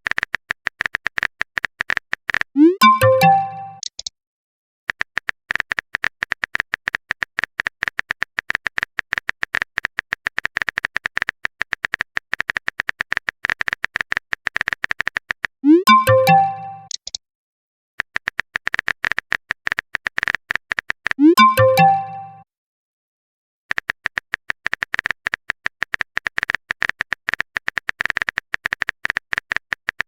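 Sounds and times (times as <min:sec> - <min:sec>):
message chime: 0:02.6 - 0:03.8, 0:15.6 - 0:16.9, 0:21.2 - 0:22.4
phone keyboard tapping clicks: 0:23.7 - 0:30.0.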